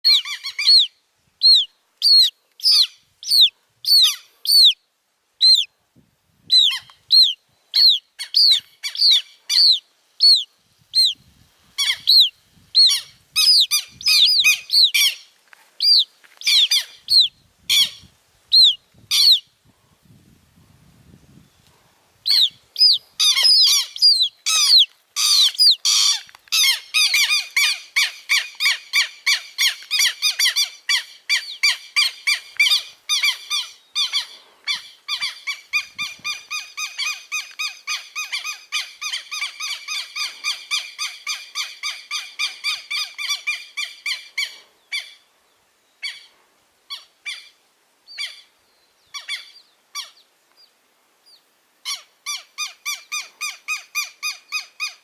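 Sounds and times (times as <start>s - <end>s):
bird chicks peeping: 11.8s - 15.2s, 15.8s - 17.9s, 22.3s - 30.1s.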